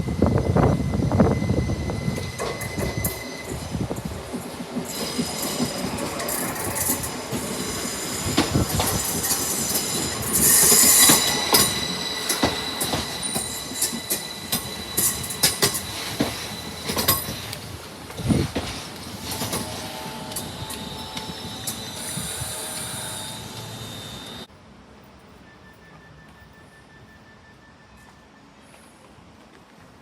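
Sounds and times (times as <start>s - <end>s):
train wheel squeal: 0.0s - 24.5s, 25.2s - 29.2s
train wheels clicking and knocking: 1.9s - 24.5s.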